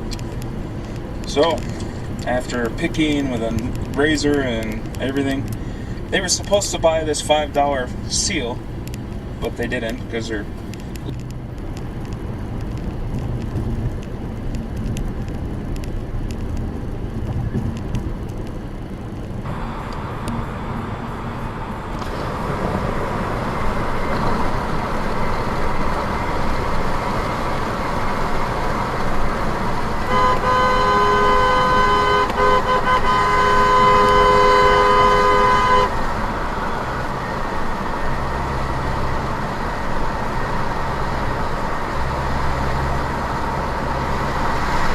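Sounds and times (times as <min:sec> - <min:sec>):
car road and engine noise: 0:00.0 - 0:44.9
car horn held: 0:30.0 - 0:36.0.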